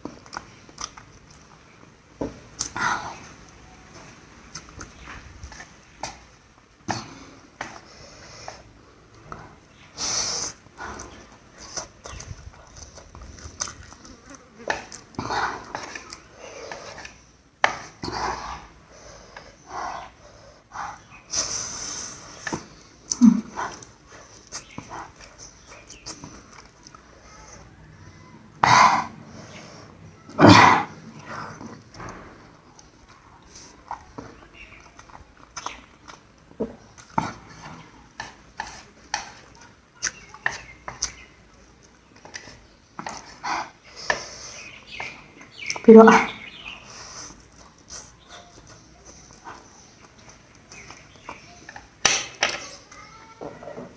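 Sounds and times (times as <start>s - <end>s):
mouth smacks and chewing: 0.0s - 20.1s, 20.9s - 27.6s, 32.8s - 52.0s
slurping and chewing noodles: 6.9s - 32.1s.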